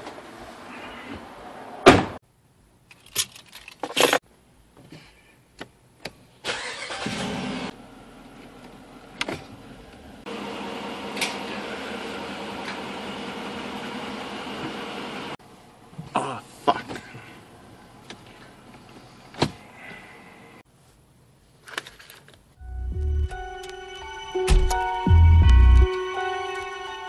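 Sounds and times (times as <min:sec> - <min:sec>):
loud thump: 0:01.8 - 0:02.2
car engine starting and idling: 0:06.4 - 0:15.9.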